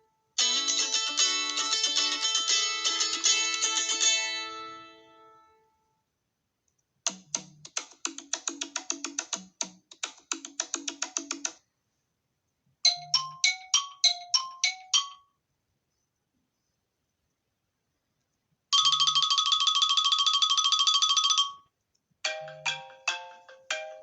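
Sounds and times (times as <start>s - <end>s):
ringtone of ringing struck notes: 0.4s - 5.8s, 12.8s - 15.4s, 18.8s - 21.6s, 22.3s - 24.0s
woody struck notes ringtone: 12.8s - 15.3s, 18.8s - 21.6s
phone ringing tone: 18.8s - 21.7s.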